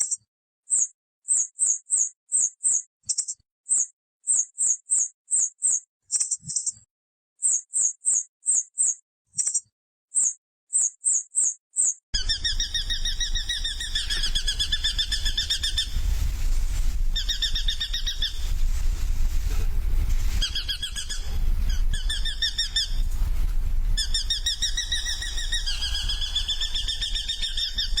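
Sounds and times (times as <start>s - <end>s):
small bird chirping: 0.0s - 28.0s
low rumble: 12.2s - 28.0s.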